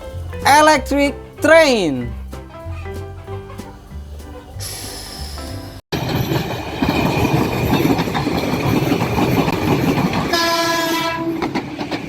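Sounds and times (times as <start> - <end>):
electric train rumbling and clattering: 5.6 - 12.0
train horn: 10.3 - 11.5.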